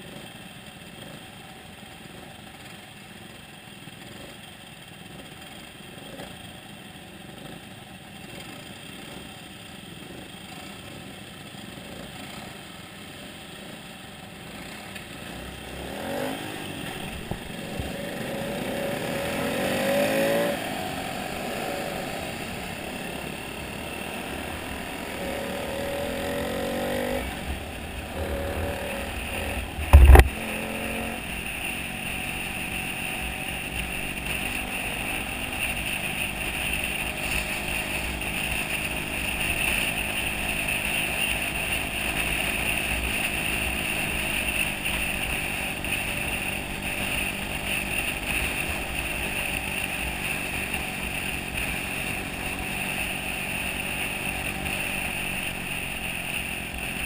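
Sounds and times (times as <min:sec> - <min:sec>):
motorcycle engine running: 0:00.0 - 0:57.0
wind and road noise: 0:00.0 - 0:57.0
loud sharp thump: 0:29.8 - 0:30.4.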